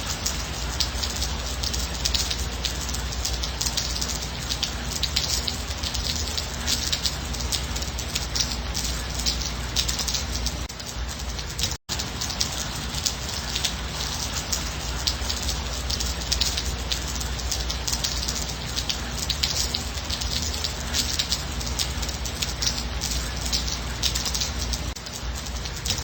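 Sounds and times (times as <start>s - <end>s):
light rain falling: 0.0s - 26.0s
raindrops ticking on a surface: 0.0s - 26.0s.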